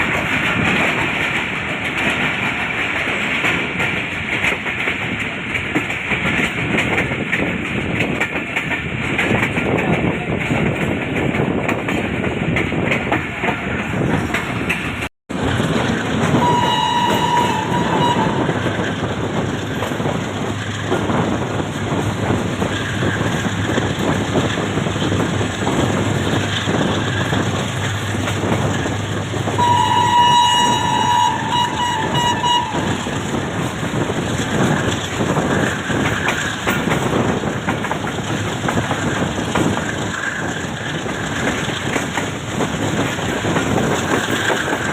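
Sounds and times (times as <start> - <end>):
train wheels clattering on rails: 0.0 - 44.9
train horn blasts: 16.3 - 18.7, 29.6 - 33.2.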